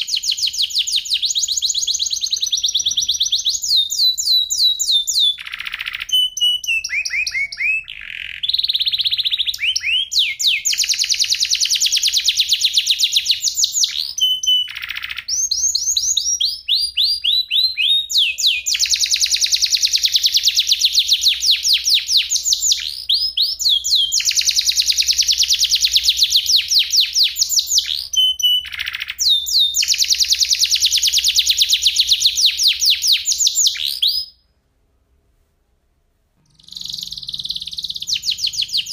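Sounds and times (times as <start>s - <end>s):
canary trilling: 0.0s - 34.4s, 36.4s - 38.9s.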